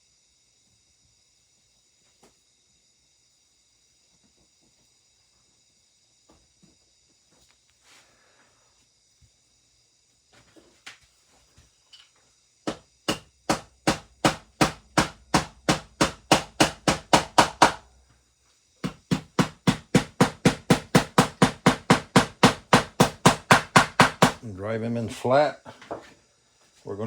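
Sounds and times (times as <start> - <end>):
hammer tapping hooks: 12.7 - 17.8, 18.8 - 24.4.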